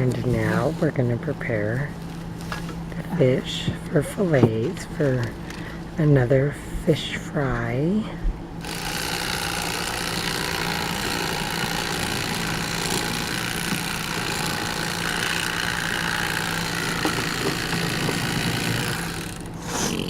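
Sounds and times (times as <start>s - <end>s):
electric knife motor buzz: 8.6s - 20.0s.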